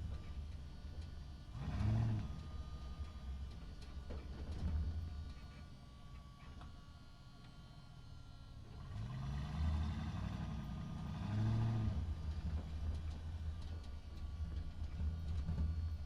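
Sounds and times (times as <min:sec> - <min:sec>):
engine running and revving: 0:01.4 - 0:03.6, 0:08.7 - 0:16.0.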